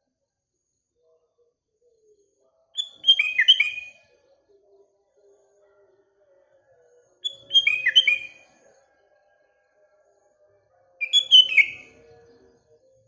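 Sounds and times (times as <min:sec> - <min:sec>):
bird singing whistled notes: 0:02.8 - 0:04.1, 0:07.2 - 0:08.6, 0:11.0 - 0:12.4.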